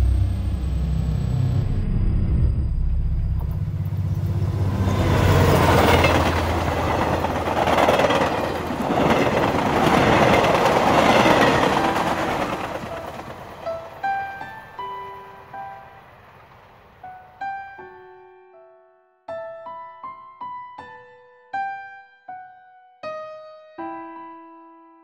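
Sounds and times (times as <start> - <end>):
train wheels clattering on rail: 3.4 - 15.2.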